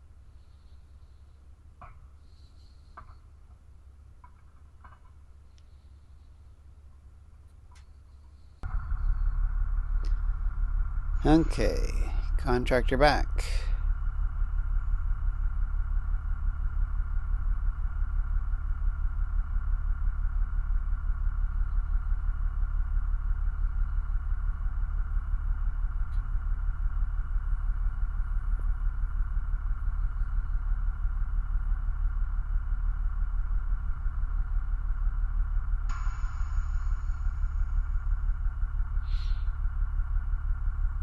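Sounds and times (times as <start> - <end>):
truck engine idling: 8.6 - 41.0.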